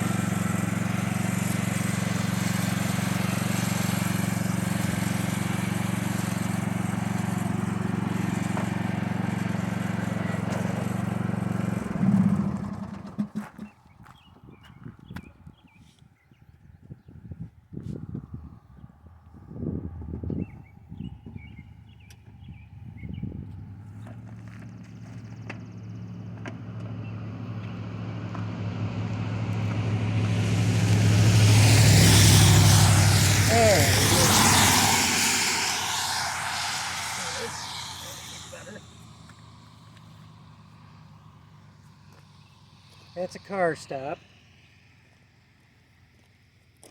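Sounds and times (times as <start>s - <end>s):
engine droning: 0.0s - 13.8s, 19.3s - 46.9s.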